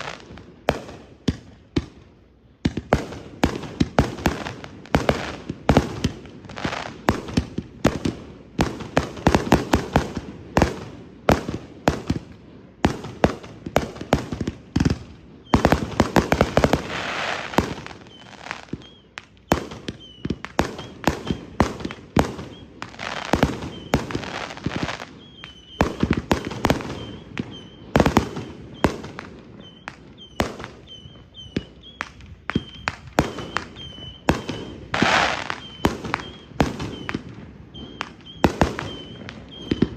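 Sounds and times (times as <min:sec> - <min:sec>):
firework bangs and crackles: 0:00.0 - 0:39.9
firework hissing: 0:15.6 - 0:19.0, 0:33.4 - 0:37.1
thin high whistle: 0:17.9 - 0:21.5, 0:23.6 - 0:26.1, 0:26.8 - 0:27.9, 0:29.6 - 0:39.9.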